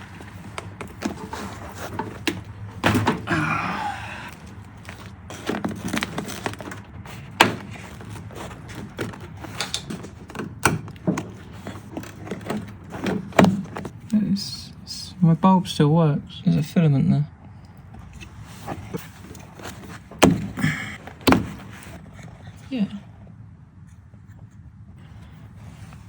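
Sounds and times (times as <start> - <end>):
rustling: 0.0 - 3.3, 4.2 - 14.2, 17.9 - 22.8
clicks and knocks of parts: 4.3 - 14.1.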